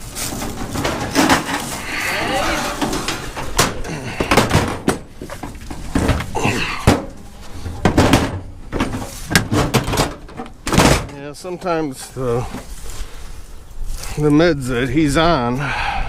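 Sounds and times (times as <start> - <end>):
scrap metal clanking: 0.0 - 11.2.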